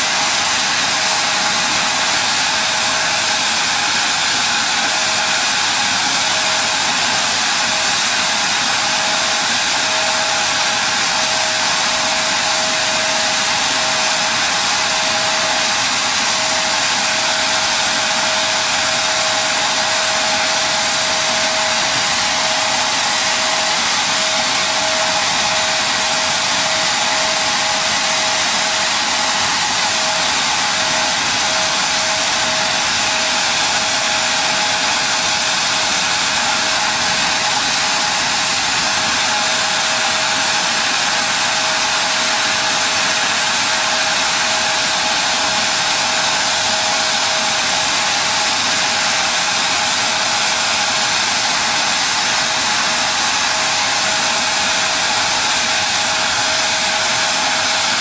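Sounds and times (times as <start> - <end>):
machinery rushing noise: 0.0 - 58.0
mid-pitched machine whine: 0.0 - 58.0.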